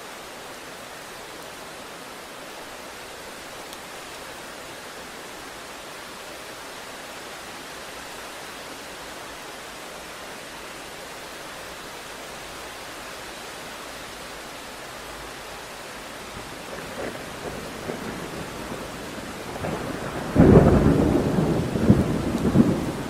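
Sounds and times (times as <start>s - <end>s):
heavy rain hiss: 0.0s - 23.0s
thunder rumble: 16.4s - 23.0s.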